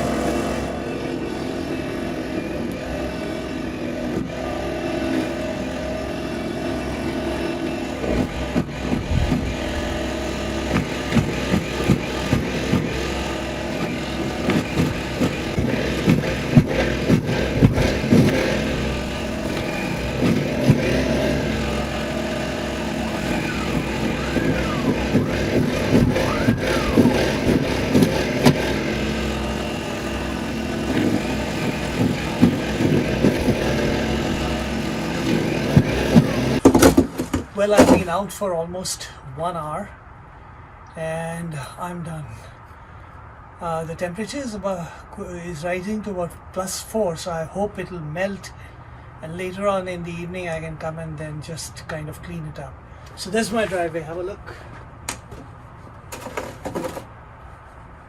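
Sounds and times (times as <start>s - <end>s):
snowblower running: 0.0s - 38.2s, 52.9s - 54.8s, 55.8s - 57.6s
knocks and thumps: 8.0s - 22.5s, 30.6s - 38.1s, 54.8s - 57.2s.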